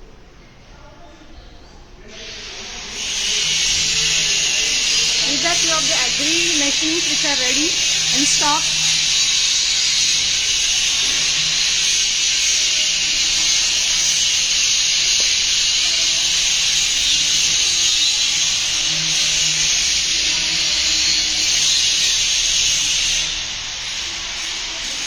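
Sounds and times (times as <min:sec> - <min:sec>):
loud steady hiss: 0:02.0 - 0:25.0.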